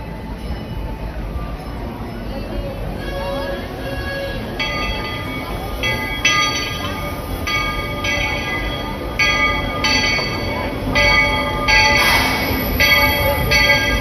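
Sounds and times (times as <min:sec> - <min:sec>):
low rumble of train: 0:00.0 - 0:14.0
steam locomotive whistle blasts: 0:11.8 - 0:14.0
burst of steam hiss: 0:11.9 - 0:12.8.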